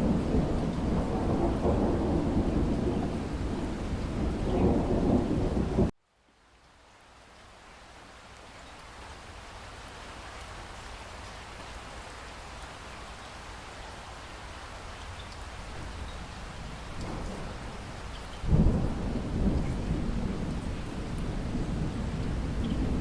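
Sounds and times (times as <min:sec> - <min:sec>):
rolling thunder: 0:00.0 - 0:05.9, 0:15.8 - 0:23.0
steady rain falling: 0:00.0 - 0:23.0.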